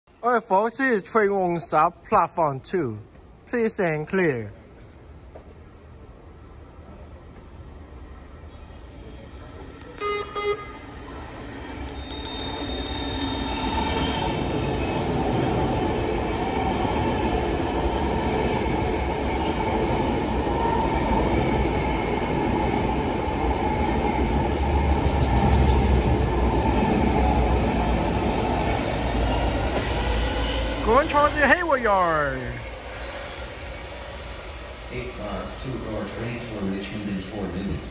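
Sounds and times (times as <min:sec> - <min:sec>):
train wheels rushing on rails: 0:10.9 - 0:37.1.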